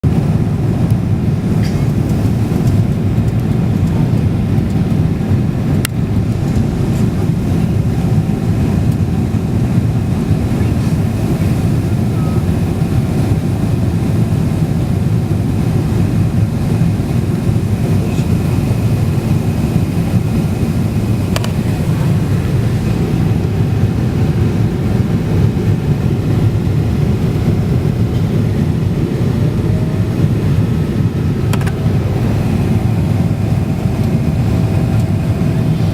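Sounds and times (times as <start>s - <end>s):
airliner cabin engine roar: 0.0s - 35.9s
faint steady whine: 0.1s - 35.9s
faint clicks in cabin: 21.3s - 21.6s, 31.5s - 31.8s.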